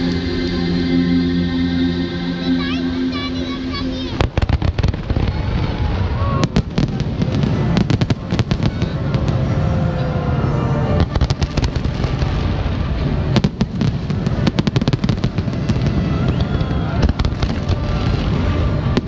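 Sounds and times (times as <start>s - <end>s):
continuous low rumble: 0.0s - 19.0s
firework bangs and crackle: 4.0s - 10.4s, 11.0s - 19.0s.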